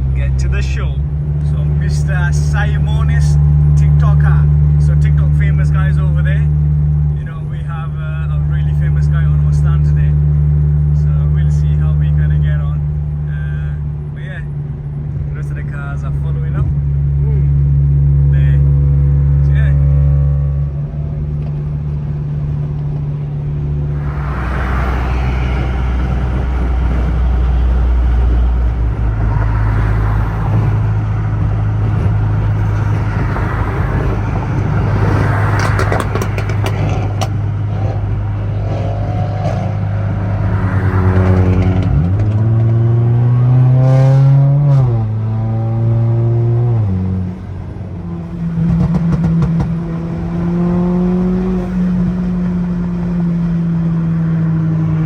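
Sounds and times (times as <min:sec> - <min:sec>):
car engine running: 0:00.0 - 0:55.0
road noise: 0:00.0 - 0:55.0.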